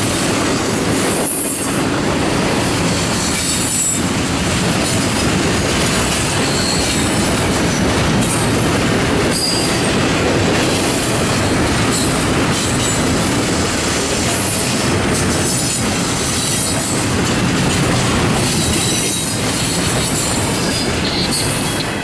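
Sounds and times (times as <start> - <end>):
high wheel squeal: 6.3 - 7.2, 9.3 - 9.8, 18.5 - 22.0.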